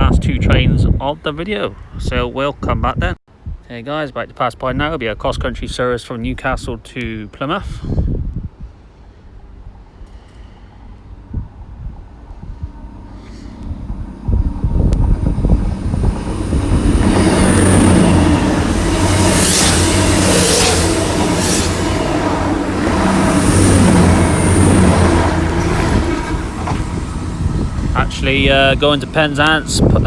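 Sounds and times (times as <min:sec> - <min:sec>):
diesel train passing: 0:08.7 - 0:30.0
high whine: 0:09.3 - 0:30.0.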